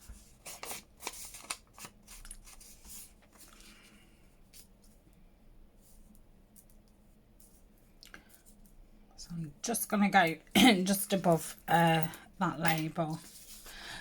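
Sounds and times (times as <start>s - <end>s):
paper rustling: 0.0s - 3.9s, 13.0s - 14.0s.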